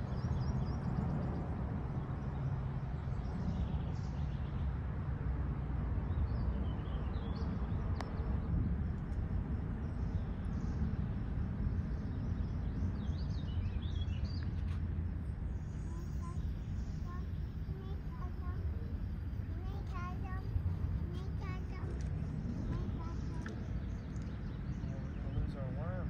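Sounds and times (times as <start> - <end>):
steady low rumble: 0.0 - 26.0
faint bird chirps: 15.5 - 21.8.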